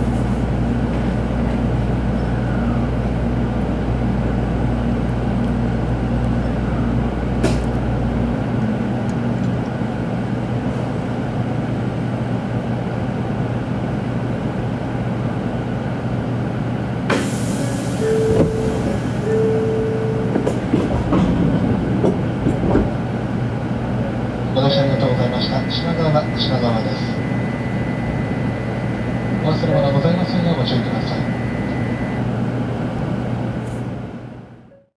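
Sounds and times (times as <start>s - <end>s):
train running rumble: 0.0s - 34.6s
short steady tones: 25.2s - 32.3s.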